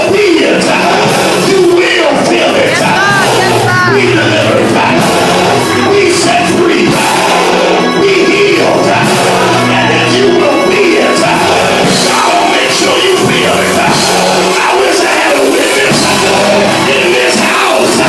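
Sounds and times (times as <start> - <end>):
live band playing: 0.0 - 18.0
people singing and shouting: 0.0 - 18.0.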